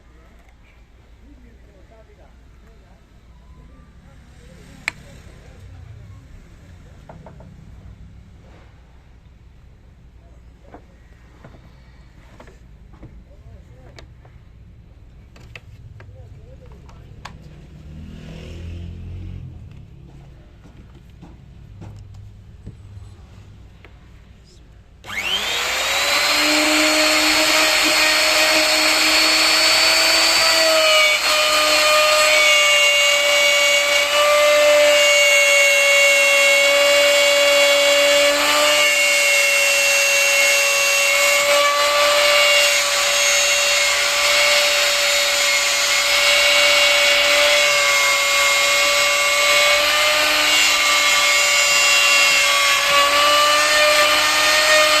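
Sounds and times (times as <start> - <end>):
power tool motor whining: 25.0 - 55.0.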